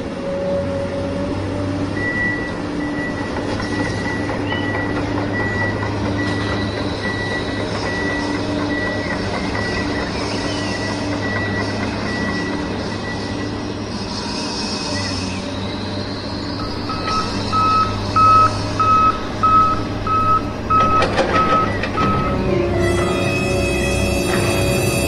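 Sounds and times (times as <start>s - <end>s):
reversing alarm beeping: 1.9s - 13.9s, 16.6s - 25.0s
low engine rumble: 15.3s - 25.0s.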